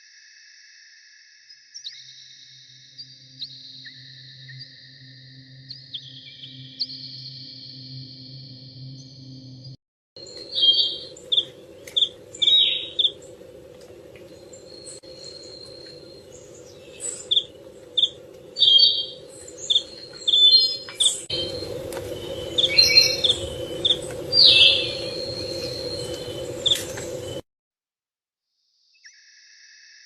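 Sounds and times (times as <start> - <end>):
birds chirping: 10.2 - 27.4
low background hum: 10.2 - 27.4.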